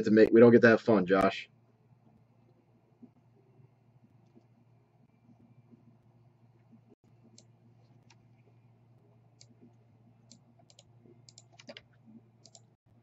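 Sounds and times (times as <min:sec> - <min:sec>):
low steady hum: 0:00.0 - 0:13.0
computer mouse clicks: 0:09.4 - 0:12.8.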